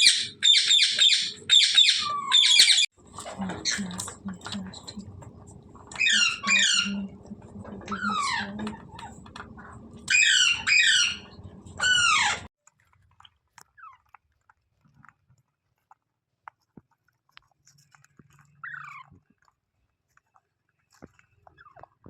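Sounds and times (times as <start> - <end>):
parakeet harsh falling screeches: 10.1 - 12.5.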